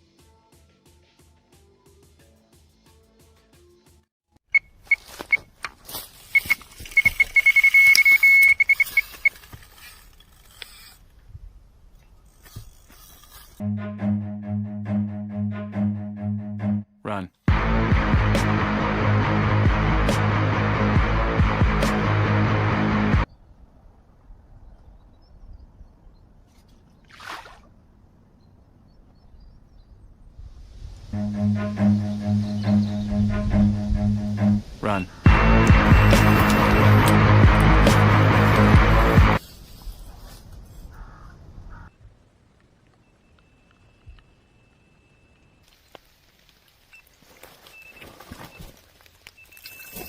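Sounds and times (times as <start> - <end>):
bite alarm beeping: 6.3 - 9.4, 34.9 - 37.8.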